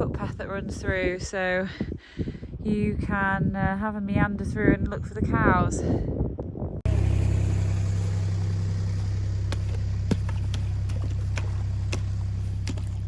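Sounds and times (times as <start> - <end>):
truck engine humming: 6.9 - 13.0.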